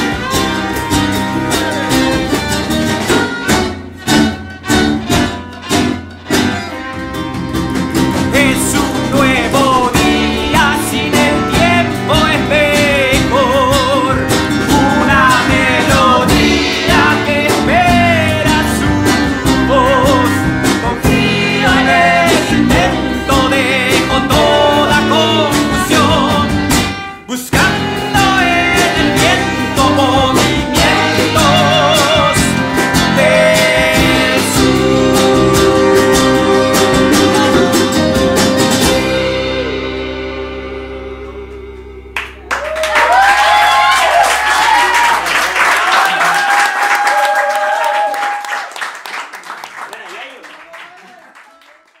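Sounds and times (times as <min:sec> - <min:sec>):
folk-rock band playing: 0:00.0 - 0:45.6
person singing: 0:08.2 - 0:43.6.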